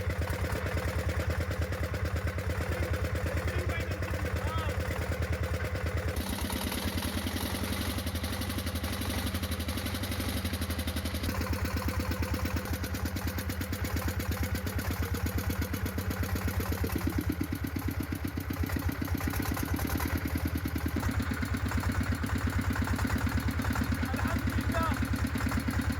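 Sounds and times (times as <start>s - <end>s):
air compressor engine running: 2.0s - 8.2s, 18.6s - 25.9s.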